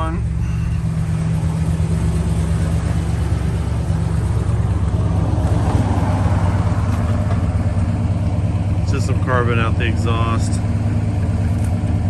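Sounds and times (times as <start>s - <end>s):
car engine fast idling: 0.0s - 12.0s.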